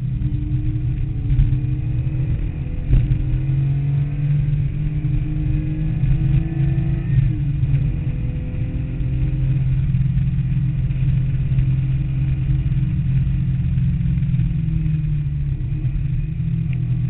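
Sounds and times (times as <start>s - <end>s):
car engine from inside cabin: 0.0s - 17.0s
gear change: 0.0s - 17.0s.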